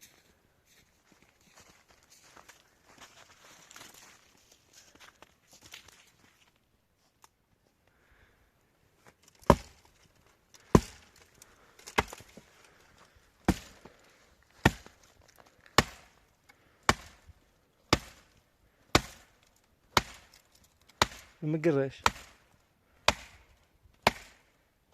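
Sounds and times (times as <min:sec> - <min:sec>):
sharp chopping strikes: 0:09.4 - 0:09.8, 0:10.7 - 0:11.1, 0:13.5 - 0:13.8, 0:14.6 - 0:15.0, 0:15.8 - 0:16.2, 0:16.9 - 0:17.2, 0:17.9 - 0:18.3, 0:18.9 - 0:19.3, 0:19.9 - 0:20.4, 0:21.0 - 0:21.4, 0:22.0 - 0:22.4, 0:23.1 - 0:24.5.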